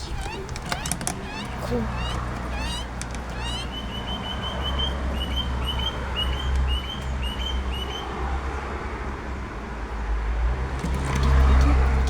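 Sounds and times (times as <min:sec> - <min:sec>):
small bird chirping: 0:00.0 - 0:08.0.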